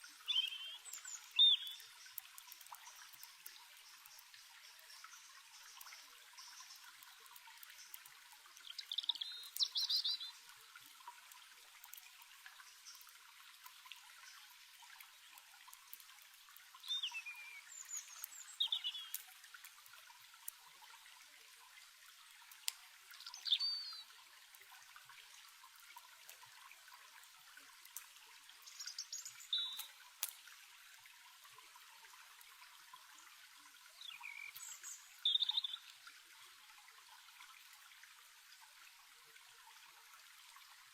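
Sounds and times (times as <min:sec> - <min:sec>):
small birds chirping: 0:00.0 - 0:10.8, 0:12.5 - 0:13.2, 0:16.8 - 0:20.0, 0:23.2 - 0:24.2, 0:28.6 - 0:30.3, 0:33.9 - 0:36.0
faint crackles: 0:00.0 - 0:36.1
stream water trickling: 0:00.0 - 0:40.9.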